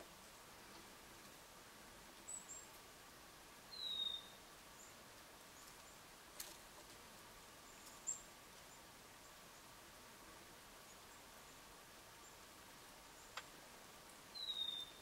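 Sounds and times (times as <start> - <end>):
high thin bird chirps: 3.7 - 4.4, 14.3 - 15.0.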